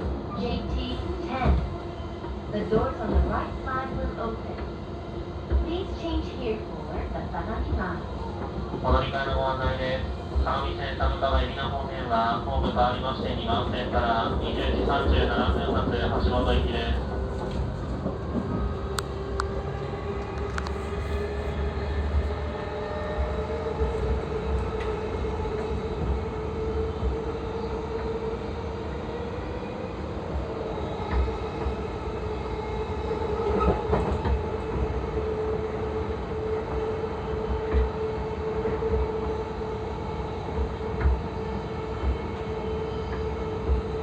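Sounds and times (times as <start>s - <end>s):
wheels rumbling on rail: 0.0s - 44.0s
train motor hum: 2.4s - 29.6s
rail clicks: 5.4s - 22.5s.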